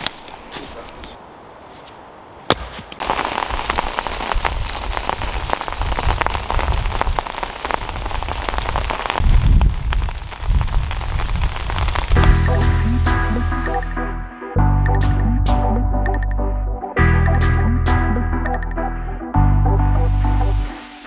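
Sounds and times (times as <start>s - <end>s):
heavy rain pattering: 3.0s - 13.9s
low rumble: 9.2s - 20.7s.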